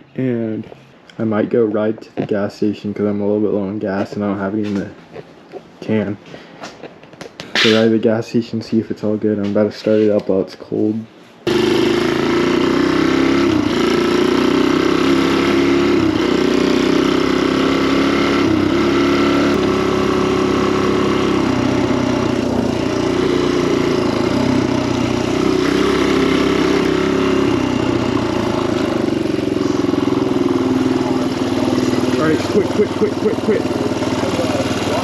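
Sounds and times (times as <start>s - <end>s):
dirt bike engine idling: 11.5s - 35.0s.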